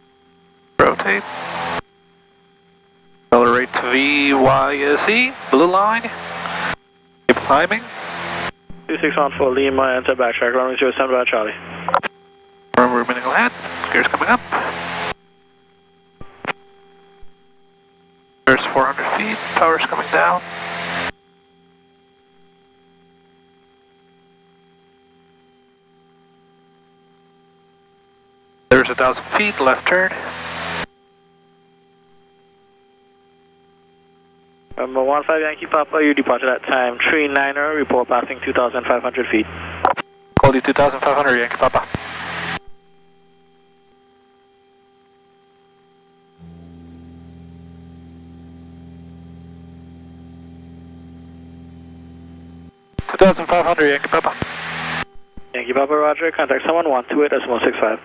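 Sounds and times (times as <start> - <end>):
airplane engine drone: 0.7 - 21.2, 28.7 - 30.9, 34.6 - 44.0, 46.3 - 58.0
faint electrical hum: 30.8 - 58.0.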